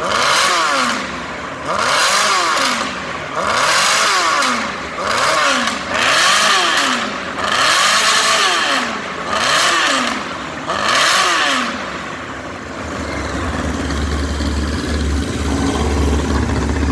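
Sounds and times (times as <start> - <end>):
motorcycle engine revving and idling: 0.0 - 16.9.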